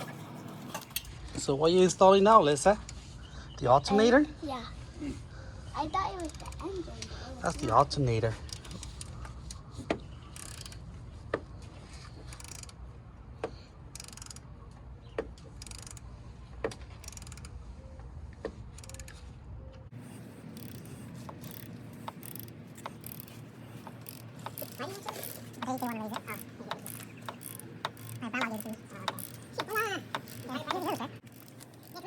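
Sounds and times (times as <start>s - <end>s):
wrench clicking on metal: 10.3s - 10.8s, 12.3s - 12.8s, 13.9s - 14.5s, 15.5s - 16.1s, 16.7s - 17.6s, 18.7s - 19.2s, 20.0s - 32.0s.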